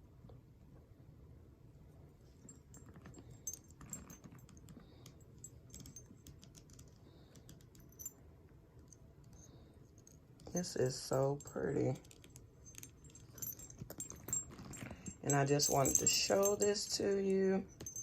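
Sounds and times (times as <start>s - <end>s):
handbag clicks and rustles: 2.4s - 4.8s, 5.4s - 8.1s, 10.0s - 18.0s.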